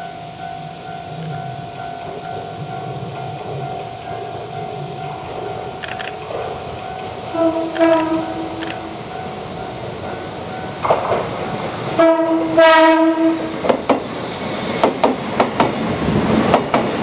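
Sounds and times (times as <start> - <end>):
train wheels clacking over rail joints: 1.0 - 17.0
train horn blast: 7.3 - 9.0, 12.0 - 13.5.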